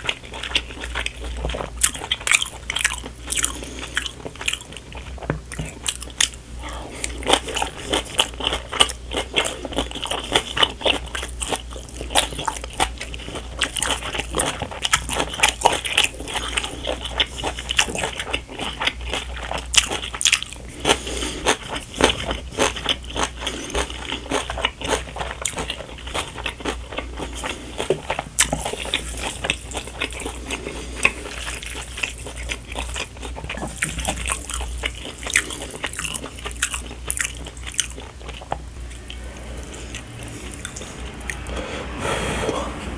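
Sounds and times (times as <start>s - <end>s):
wet chewing and biting: 0.0s - 6.4s, 7.0s - 41.5s
steady low hum: 0.0s - 42.9s.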